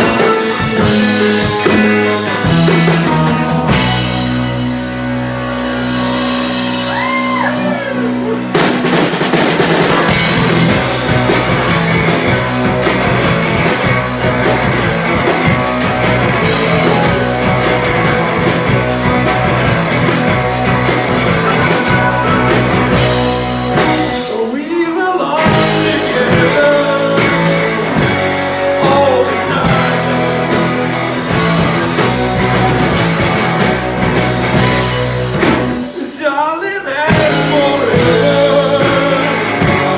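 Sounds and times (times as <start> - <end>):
electric guitar bending notes: 0.0 - 24.6, 25.3 - 36.0
drum kit: 0.0 - 39.9
rock band playing: 0.0 - 39.9.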